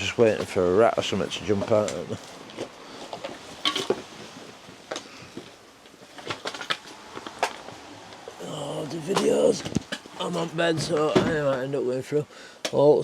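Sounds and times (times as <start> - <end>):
plastic cases clattering: 1.5 - 4.1, 4.9 - 7.7.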